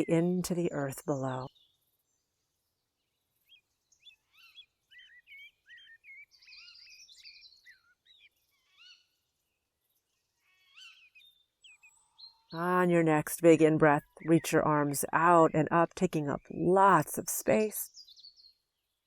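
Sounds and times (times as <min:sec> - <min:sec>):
faint songbird chirps and whistles: 0:00.0 - 0:12.6, 0:17.8 - 0:19.0.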